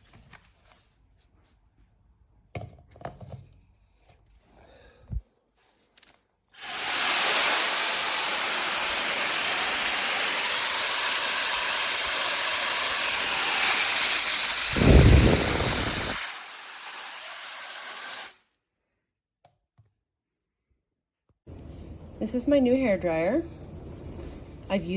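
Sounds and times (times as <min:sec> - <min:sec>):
hair dryer blowing: 0:06.6 - 0:18.4.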